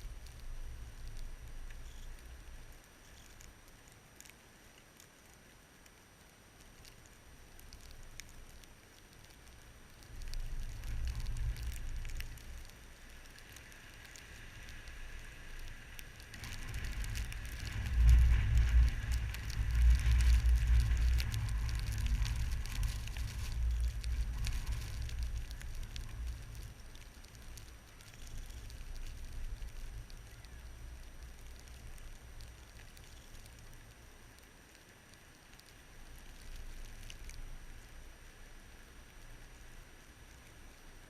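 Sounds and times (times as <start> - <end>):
faint crackling ticks: 0.0 - 41.0
steady hiss: 0.0 - 41.0
wind buffeting microphone: 15.8 - 26.9.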